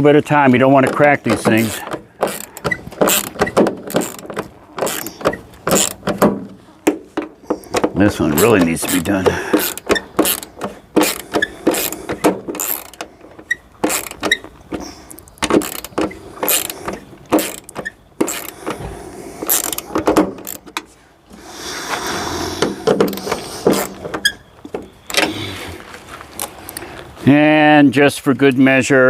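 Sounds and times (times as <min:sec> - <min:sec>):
scraping: 0:00.0 - 0:21.1, 0:21.9 - 0:27.3
hand ratchet clicking: 0:00.8 - 0:06.2, 0:07.7 - 0:18.8, 0:19.4 - 0:20.9.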